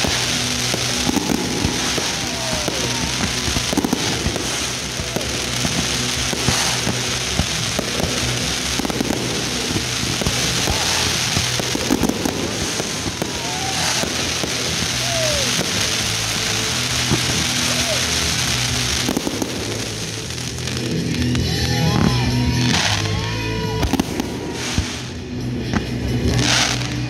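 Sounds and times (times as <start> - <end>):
fireworks shells bursting: 0.0 - 21.3
fireworks crackling: 0.0 - 27.0.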